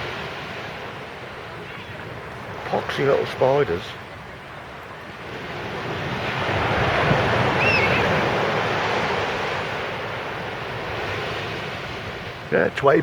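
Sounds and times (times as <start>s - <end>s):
sea waves breaking on beach: 0.0s - 13.0s.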